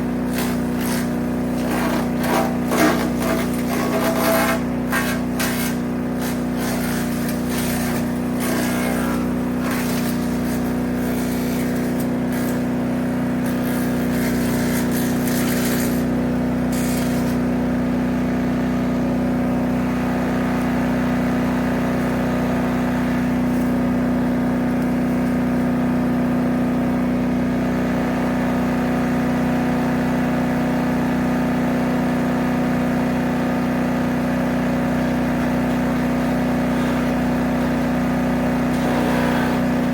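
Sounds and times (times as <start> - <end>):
wood chipper engine running: 0.0 - 39.9
brush being chipped: 0.4 - 10.4.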